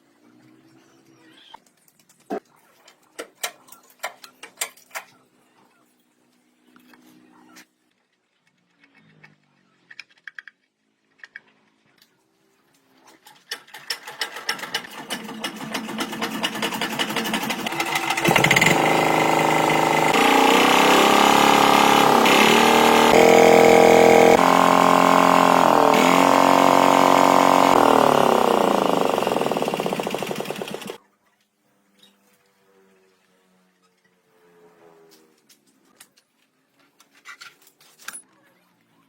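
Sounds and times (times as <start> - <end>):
tractor engine running: 15.5 - 31.0.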